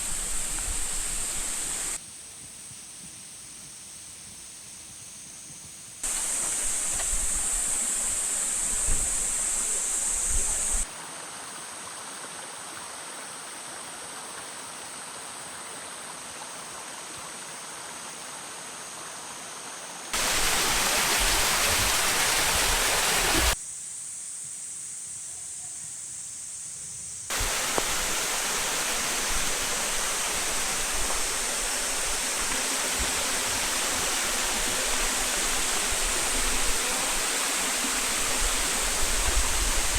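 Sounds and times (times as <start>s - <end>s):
waterfall rushing: 0.0s - 2.0s, 6.0s - 10.9s, 20.2s - 23.6s, 27.3s - 39.9s.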